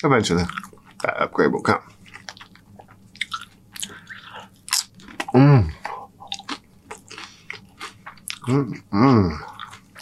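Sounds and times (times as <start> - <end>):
crunchy chips being chewed: 2.0 - 10.0
person humming: 5.3 - 6.3, 8.5 - 9.5.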